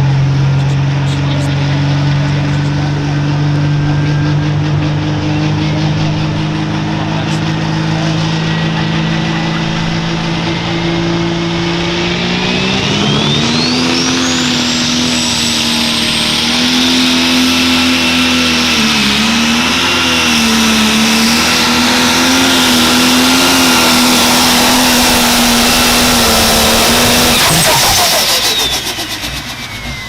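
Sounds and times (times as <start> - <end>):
tractor diesel engine at full power: 0.0 - 30.0
high turbo whistle: 10.4 - 30.0.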